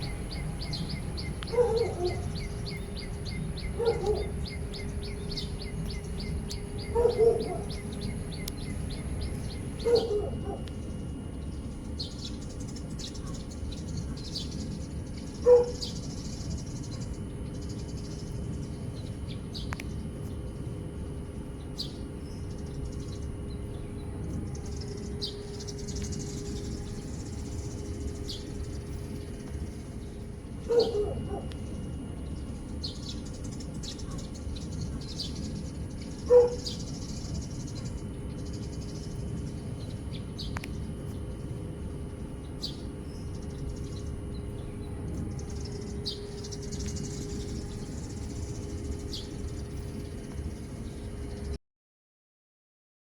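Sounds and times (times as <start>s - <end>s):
low outdoor background noise: 0.0s - 51.6s
dog barking: 1.5s - 2.5s, 3.7s - 4.4s, 6.9s - 7.8s, 9.8s - 10.7s, 13.2s - 13.4s, 15.4s - 15.8s, 30.6s - 31.6s, 34.0s - 34.3s, 36.3s - 36.8s.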